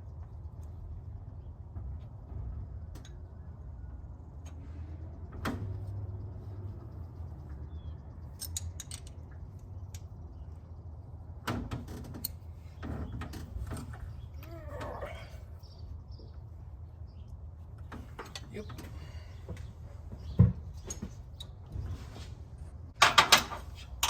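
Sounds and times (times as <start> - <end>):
metal clicks of hand tools: 8.4 - 9.3.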